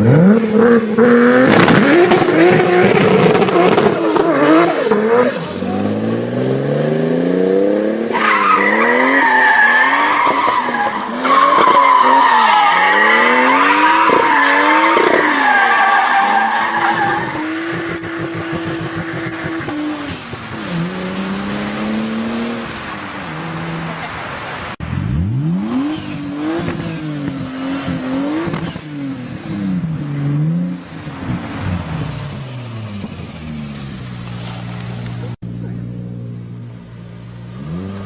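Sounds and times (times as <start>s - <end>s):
car engine revving: 0.0s - 38.0s
tyre squeal: 2.0s - 5.7s, 8.1s - 18.0s, 25.9s - 29.2s.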